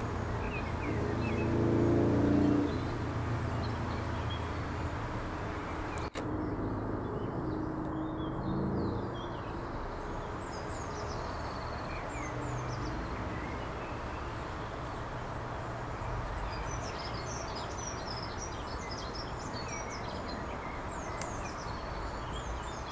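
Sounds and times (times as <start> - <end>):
small birds chirping: 0.0 - 22.9
sharp click: 6.0 - 6.3.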